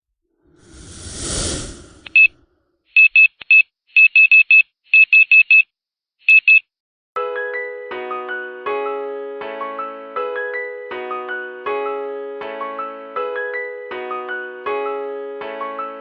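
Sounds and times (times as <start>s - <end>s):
short high electronic beeps: 2.0s - 2.3s.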